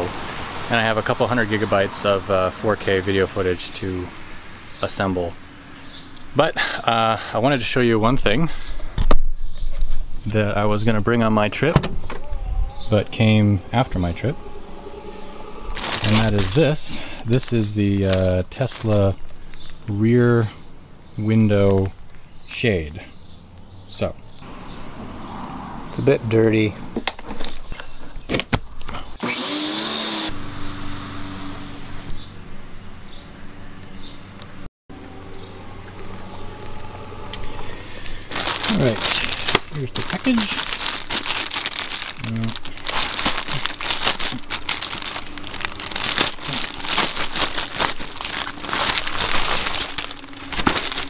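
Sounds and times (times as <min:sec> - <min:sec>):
packaging crinkling: 0:15.8 - 0:19.8, 0:36.0 - 0:51.0
small motor whirring hum: 0:29.2 - 0:32.2, 0:35.0 - 0:37.8.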